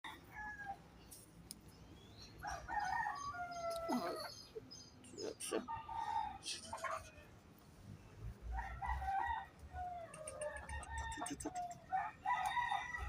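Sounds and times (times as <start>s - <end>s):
chickens clucking: 2.3s - 7.3s, 8.6s - 13.0s
rooster crowing: 2.4s - 4.3s, 8.5s - 13.0s.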